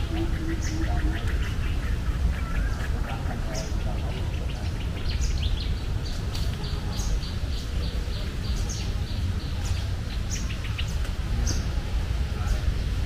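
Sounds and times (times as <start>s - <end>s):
small birds chirping: 0.0s - 13.0s
steady low rumble: 0.0s - 13.0s.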